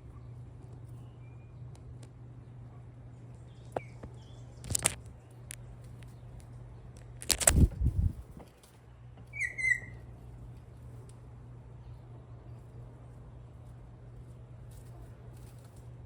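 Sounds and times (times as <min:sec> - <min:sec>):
steady low hum: 0:00.0 - 0:16.0
harsh bird call: 0:09.3 - 0:10.0.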